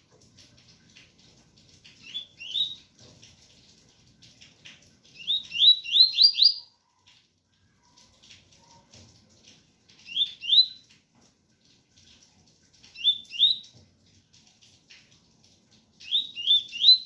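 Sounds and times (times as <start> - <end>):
faint hiss of rain: 0.0 - 17.0
bird singing whistled notes: 2.0 - 2.8, 5.2 - 6.7, 10.1 - 10.8, 13.0 - 13.6, 16.0 - 17.0.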